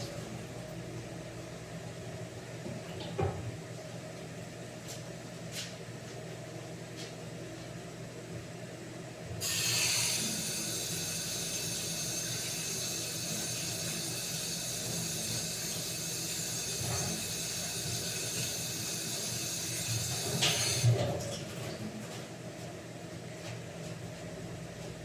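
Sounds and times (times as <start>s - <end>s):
steady hiss: 9.4s - 20.8s.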